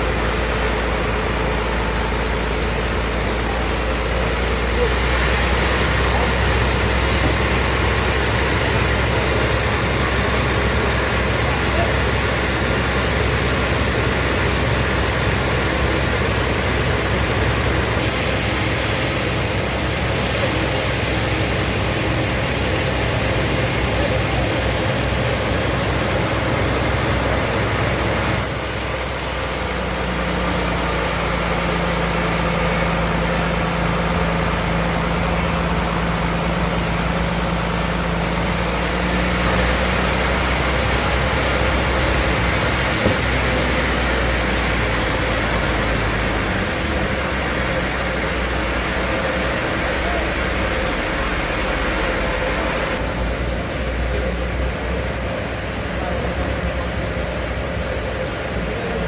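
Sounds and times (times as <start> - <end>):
high hiss: 0.0 - 4.2, 24.1 - 38.4
steady hum: 0.0 - 4.2, 20.9 - 38.9
bandsaw running: 0.0 - 53.0.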